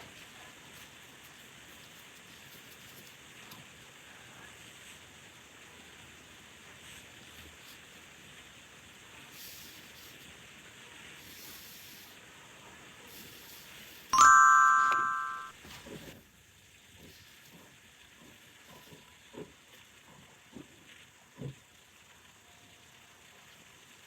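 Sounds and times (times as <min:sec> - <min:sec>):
faint steady hiss: 0:00.0 - 0:15.5
sharp ringing ding: 0:14.2 - 0:15.6.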